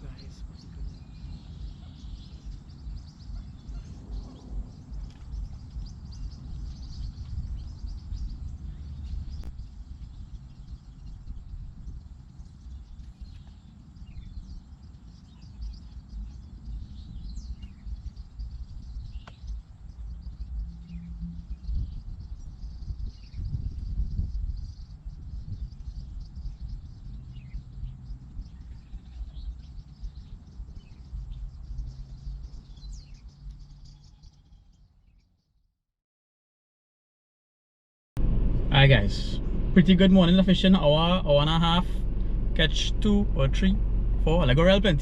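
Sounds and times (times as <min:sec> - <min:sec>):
low rumble: 0:00.0 - 0:33.6, 0:38.2 - 0:45.0
birds chirping: 0:00.0 - 0:35.4, 0:38.2 - 0:45.0.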